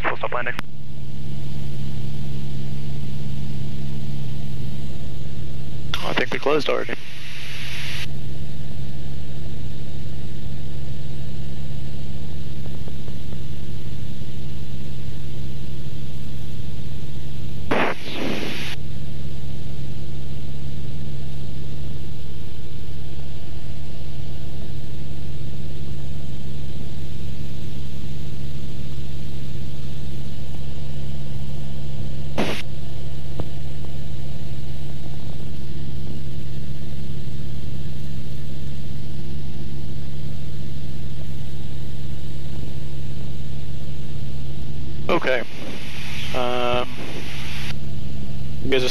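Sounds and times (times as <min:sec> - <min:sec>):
burst of noise: 0:17.7 - 0:18.8, 0:32.3 - 0:32.7, 0:45.1 - 0:47.8.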